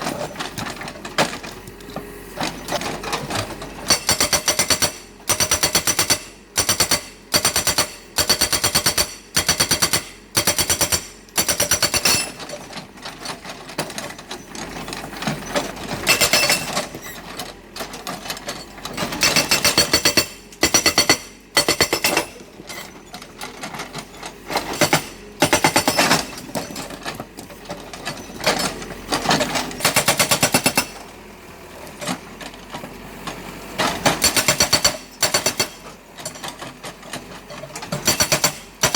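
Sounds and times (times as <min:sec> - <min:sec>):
hydraulic breaker hammering: 0:03.9 - 0:12.4, 0:19.1 - 0:22.4, 0:29.8 - 0:31.0, 0:34.1 - 0:35.8, 0:38.0 - 0:38.9.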